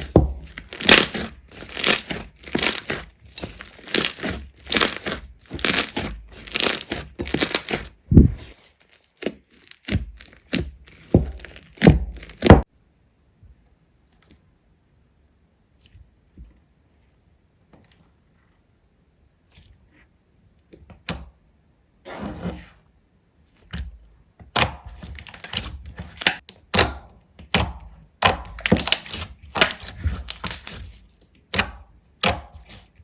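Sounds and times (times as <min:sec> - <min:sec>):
slime crackling: 0:00.0 - 0:12.6, 0:28.4 - 0:31.6.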